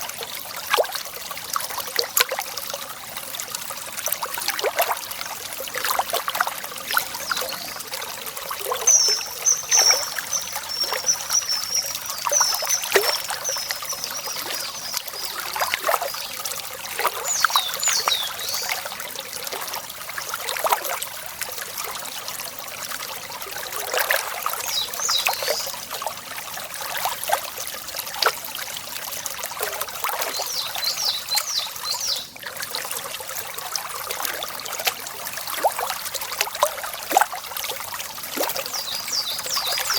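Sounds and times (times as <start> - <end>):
water trickling and splashing: 0.0 - 39.9
songbird trilling and chirping: 8.8 - 15.4.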